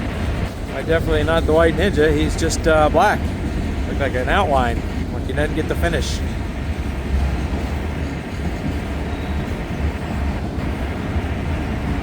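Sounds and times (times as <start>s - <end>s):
freight train rolling past: 0.0s - 12.0s
wind buffeting microphone: 0.0s - 12.0s.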